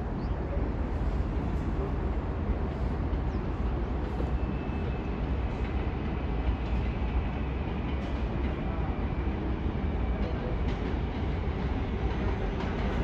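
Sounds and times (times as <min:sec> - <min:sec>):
subway train running on track: 0:00.0 - 0:13.0.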